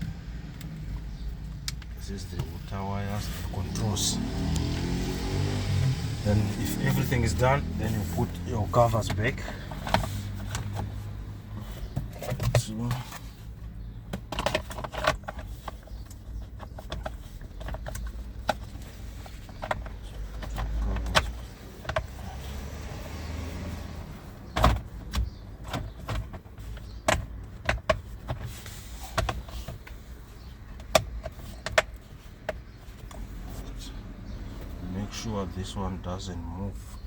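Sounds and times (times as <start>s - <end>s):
plastic parts clicking and knocking: 8.7s - 11.0s, 13.9s - 22.2s, 24.5s - 33.2s.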